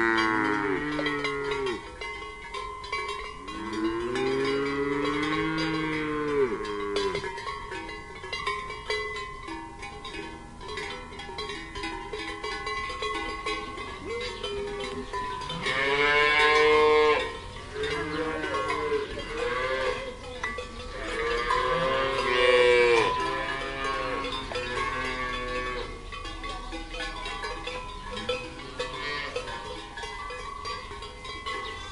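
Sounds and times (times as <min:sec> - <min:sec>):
cattle mooing: 0:00.0 - 0:01.8, 0:03.5 - 0:07.2, 0:14.0 - 0:20.2, 0:21.0 - 0:26.0
steady ringing tones: 0:00.0 - 0:31.9.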